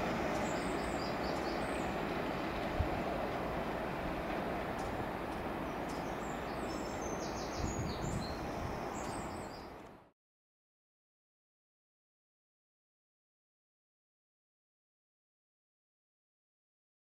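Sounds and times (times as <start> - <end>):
diesel train rumble: 0.0 - 10.1
birds chirping: 0.1 - 2.4, 4.7 - 9.8.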